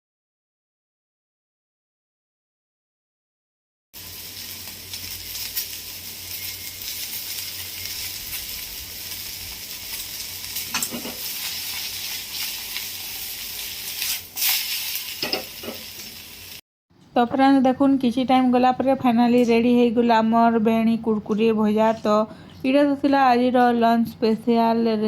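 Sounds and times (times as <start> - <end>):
okra sizzling in hot oil: 4.0 - 16.6.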